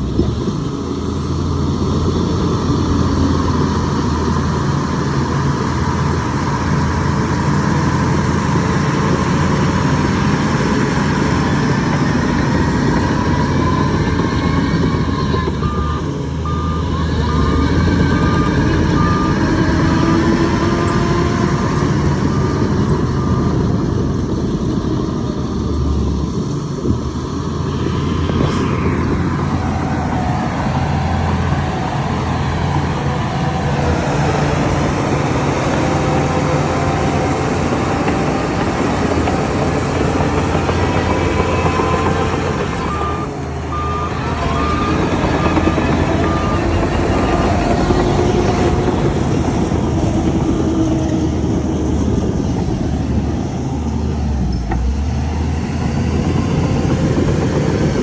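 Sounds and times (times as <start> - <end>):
heavy diesel machinery running: 0.0 - 58.0
reversing alarm beeping: 12.9 - 21.1, 32.8 - 49.0.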